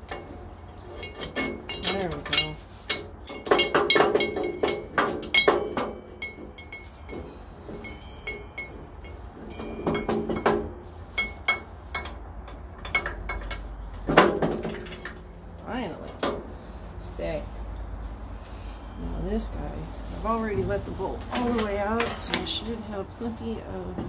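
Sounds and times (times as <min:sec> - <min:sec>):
metal clinking and knocking: 0:00.0 - 0:15.4.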